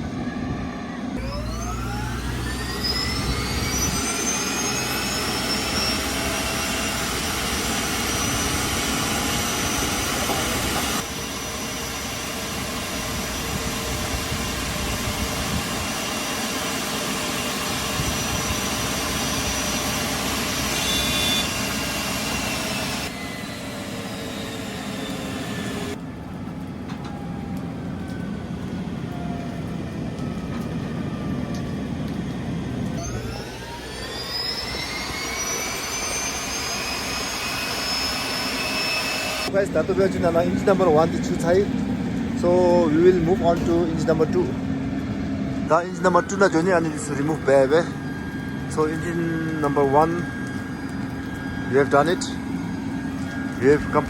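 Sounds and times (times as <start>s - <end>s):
jet engine whine: 0.0s - 54.0s.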